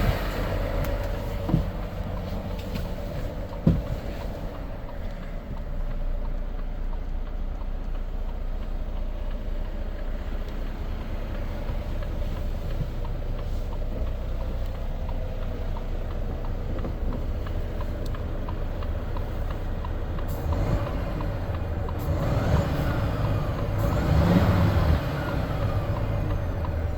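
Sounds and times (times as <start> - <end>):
truck diesel engine running: 0.0 - 26.9.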